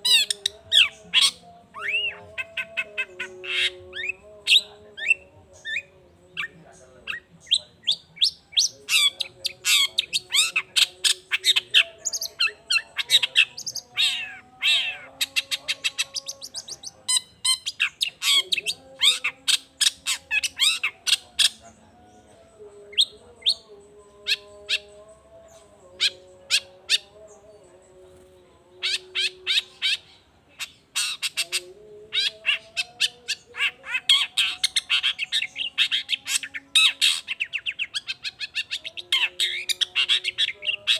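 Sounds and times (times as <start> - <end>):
shrike harsh chattering calls: 0.0 - 21.7, 28.8 - 40.9.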